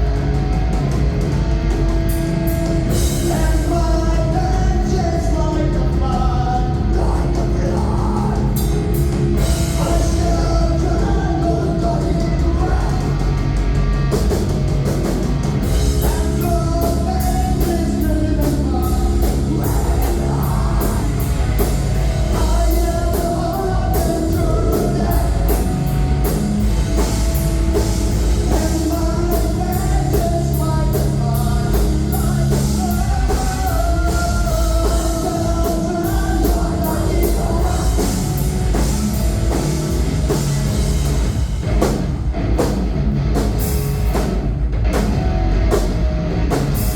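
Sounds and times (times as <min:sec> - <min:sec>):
bass guitar: 0:00.0 - 0:46.9
distorted electric guitars: 0:00.0 - 0:46.9
drum kit with cymbals: 0:00.0 - 0:46.9
person singing: 0:09.6 - 0:13.2, 0:16.0 - 0:25.9, 0:28.4 - 0:38.5.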